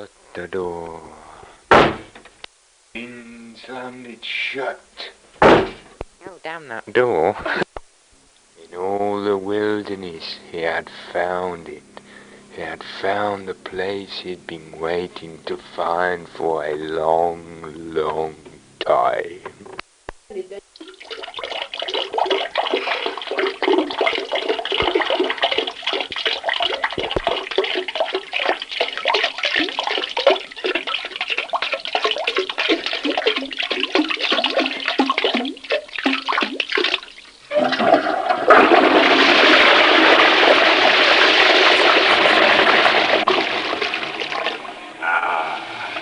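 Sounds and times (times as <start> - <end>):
water trickling into toilet bowl: 20.8 - 44.8
toilet flushing: 20.8 - 45.0.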